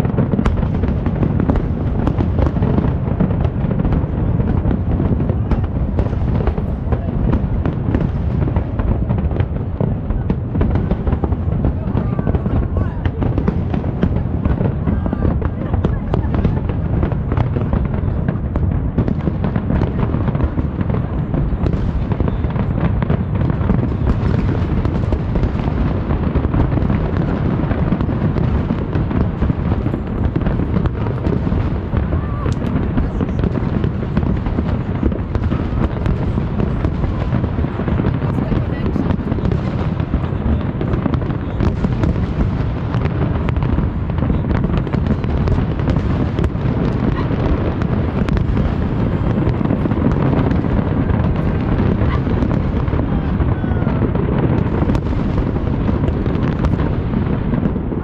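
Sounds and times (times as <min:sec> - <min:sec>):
fireworks bangs and booms: 0:00.0 - 0:58.0.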